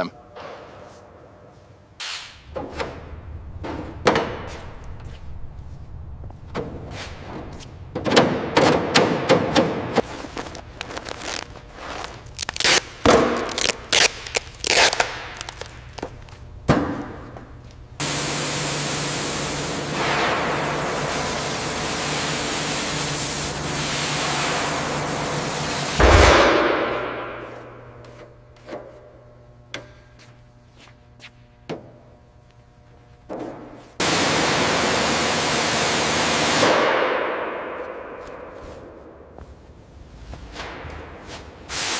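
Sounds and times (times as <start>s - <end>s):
low hum: 2.4s - 7.9s, 26.0s - 28.5s
heavy thud: 26.0s - 28.0s.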